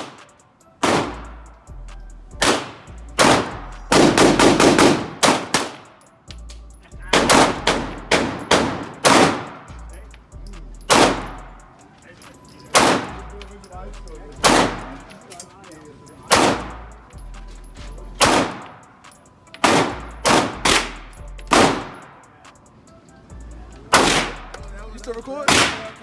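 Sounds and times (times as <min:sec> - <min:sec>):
gunshots with short echo: 0:00.0 - 0:01.4, 0:02.4 - 0:05.9, 0:07.1 - 0:09.7, 0:10.9 - 0:11.5, 0:12.7 - 0:13.2, 0:14.4 - 0:15.1, 0:16.3 - 0:16.8, 0:18.2 - 0:18.8, 0:19.6 - 0:22.2, 0:23.9 - 0:24.6, 0:25.5 - 0:26.0.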